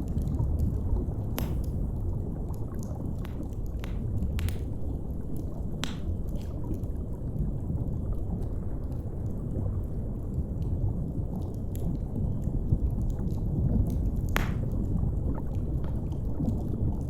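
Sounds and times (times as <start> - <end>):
wood fire crackling and popping: 0.0 - 7.0, 11.4 - 16.6
deep underwater rumble: 0.0 - 17.0.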